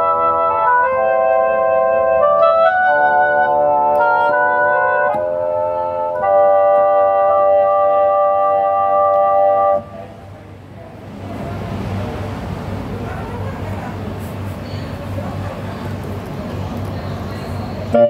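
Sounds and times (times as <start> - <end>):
keyboard playing sustained chords: 0.0 - 10.4.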